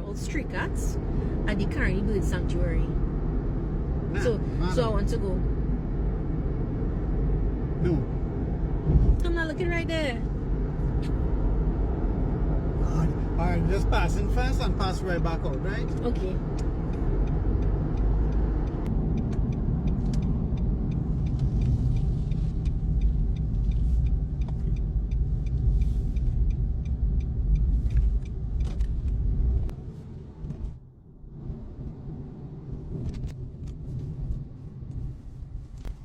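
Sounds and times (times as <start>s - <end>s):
car engine and road rumble: 0.0s - 36.0s
low hum: 0.0s - 36.0s.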